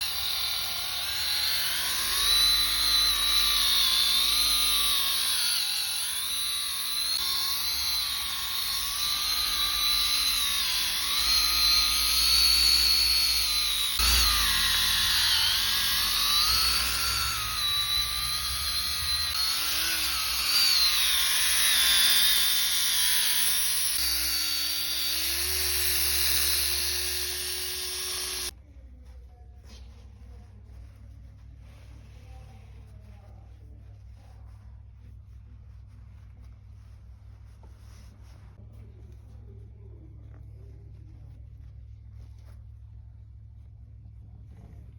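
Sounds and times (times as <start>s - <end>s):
polishing machine whining: 0.0s - 28.6s.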